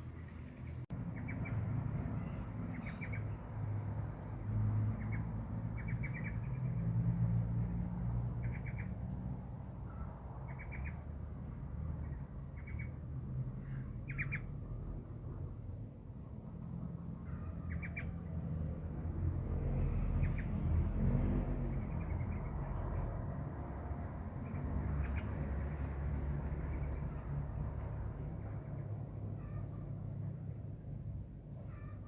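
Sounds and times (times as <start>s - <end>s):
steady low rumble: 0.0s - 31.7s.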